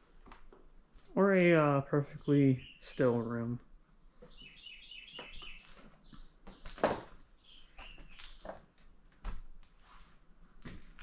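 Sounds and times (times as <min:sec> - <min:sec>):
bird chirping: 0:01.6 - 0:08.8.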